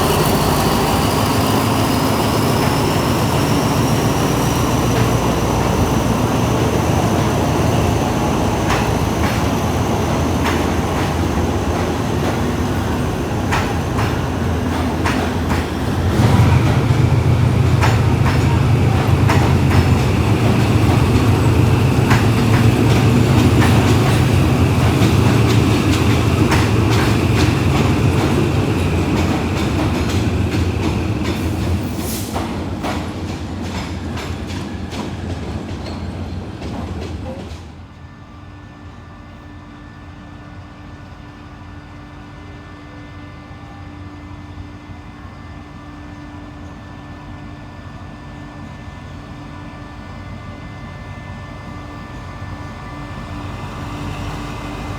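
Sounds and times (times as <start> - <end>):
wheels clacking over rail joints: 0.0 - 37.7
diesel train rumbling past: 0.0 - 54.9.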